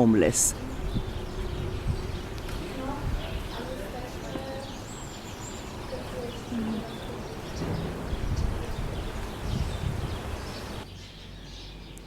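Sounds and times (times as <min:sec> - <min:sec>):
low rumble: 0:00.5 - 0:03.7, 0:07.2 - 0:10.9.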